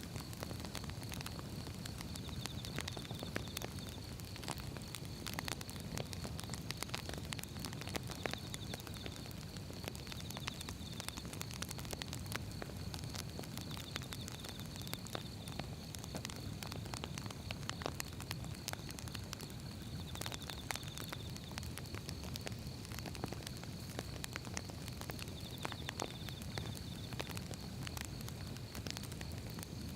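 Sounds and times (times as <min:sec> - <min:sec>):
firewood crackling and popping: 0:00.0 - 0:29.9.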